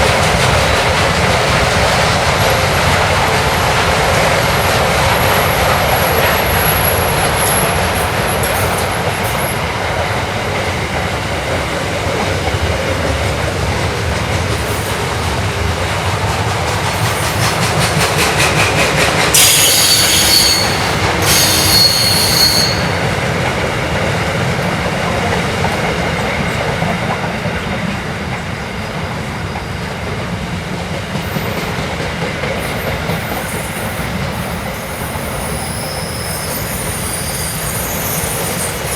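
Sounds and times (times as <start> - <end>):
freight train wheels rumbling on rails: 0.0 - 38.9
train wheels squealing: 4.4 - 9.9, 16.7 - 23.3, 31.1 - 38.9.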